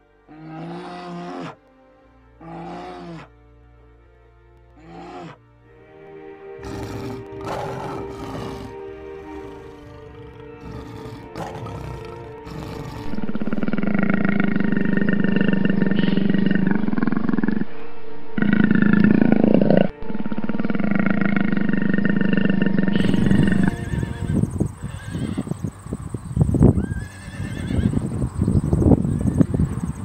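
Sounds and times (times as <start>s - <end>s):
background music: 0.0s - 25.5s
large animal calling: 2.4s - 3.3s, 4.8s - 5.4s, 6.6s - 25.9s.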